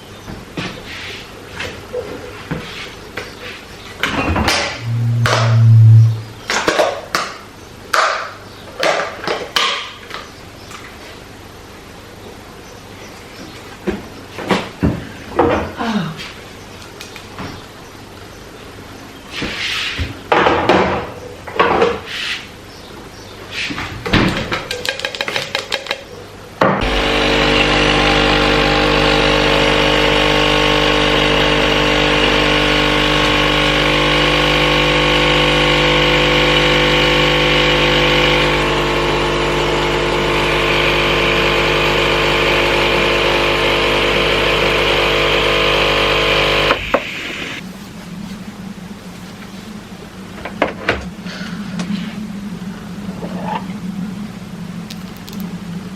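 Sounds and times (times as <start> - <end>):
electric motor humming: 4.7 - 6.5, 26.8 - 47.6.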